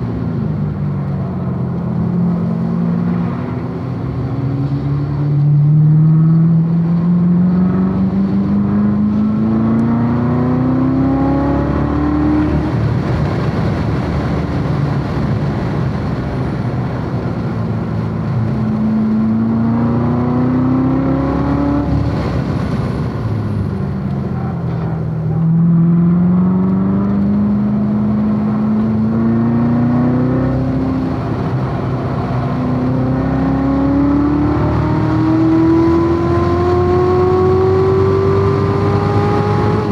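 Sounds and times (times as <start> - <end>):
car engine accelerating hard: 0.0 - 39.9
wind noise: 7.6 - 25.4.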